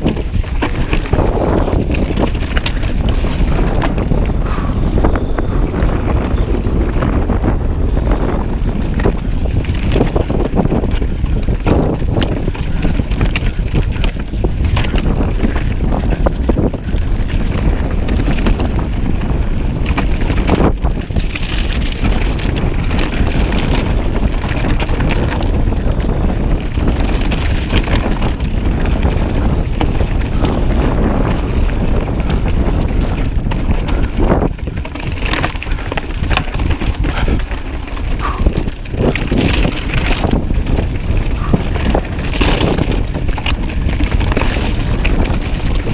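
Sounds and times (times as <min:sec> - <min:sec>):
mountain bike clicks and rattles: 0:00.0 - 0:45.9
wind buffeting microphone: 0:00.0 - 0:45.9.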